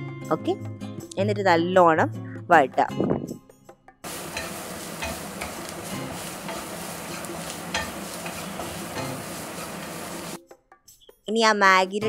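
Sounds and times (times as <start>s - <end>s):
onions sizzling in oil: 4.0s - 10.4s
spatula scraping and tapping pan: 4.1s - 10.4s.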